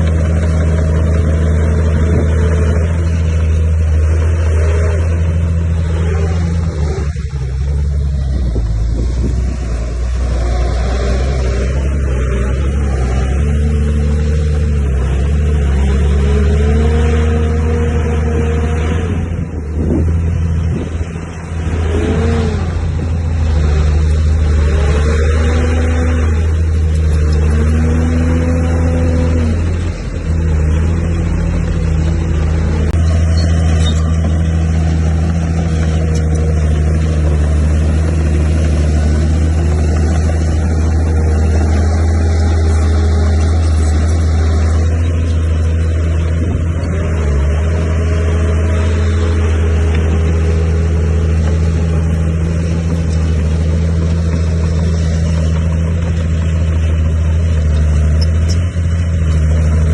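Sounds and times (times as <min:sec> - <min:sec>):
heavy diesel engine under load: 0:00.0 - 0:59.9.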